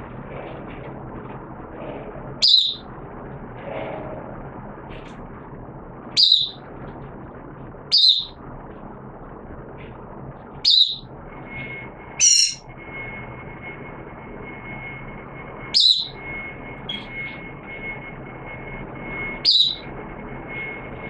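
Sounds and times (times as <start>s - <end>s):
faint high whine: 0.0s - 21.0s
bird chirping high-pitched: 2.4s - 2.8s, 6.2s - 6.6s, 7.9s - 8.4s, 10.6s - 11.1s, 12.2s - 12.6s, 15.7s - 17.4s, 19.4s - 19.9s.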